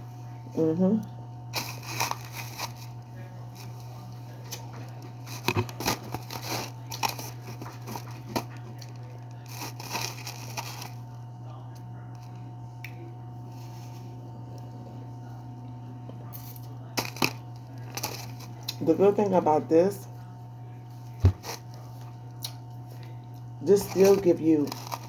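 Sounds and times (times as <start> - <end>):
chewing crunchy ice: 1.5 - 11.2, 16.3 - 18.8, 21.5 - 25.0.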